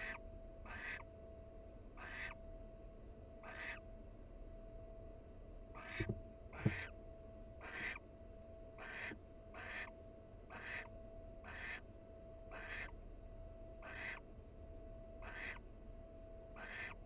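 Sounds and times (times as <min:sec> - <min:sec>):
barn owl hissing calls: 0:00.0 - 0:01.0, 0:02.0 - 0:02.4, 0:03.4 - 0:03.8, 0:05.8 - 0:06.9, 0:07.6 - 0:08.0, 0:08.8 - 0:09.9, 0:10.5 - 0:11.8, 0:12.5 - 0:12.9, 0:13.8 - 0:14.2, 0:15.2 - 0:15.6, 0:16.6 - 0:17.0
faint electrical hum: 0:00.0 - 0:17.0.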